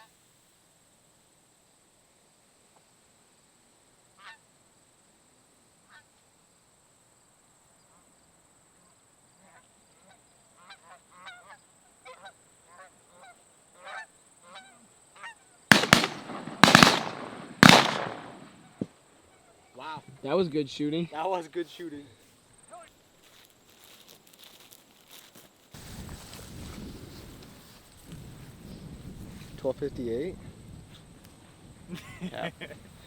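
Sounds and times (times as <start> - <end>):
shotgun blasts: 15.7 - 18.8.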